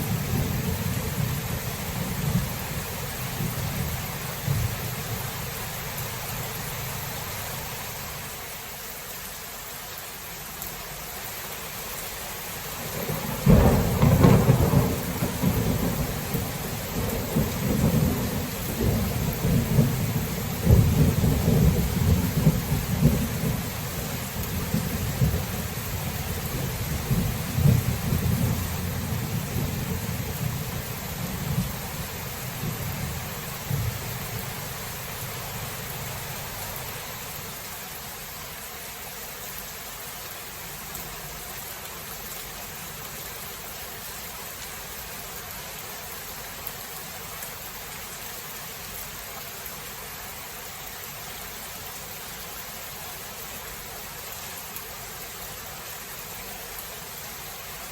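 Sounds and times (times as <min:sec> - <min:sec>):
heavy rain hissing: 0:00.0 - 0:57.9
thunder rumbling: 0:12.9 - 0:36.8.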